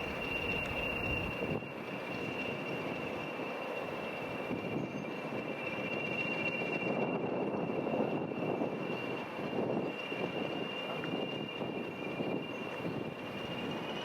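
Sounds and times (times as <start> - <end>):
high steady whine: 0.0 - 1.6
train rumbling past: 0.0 - 3.4.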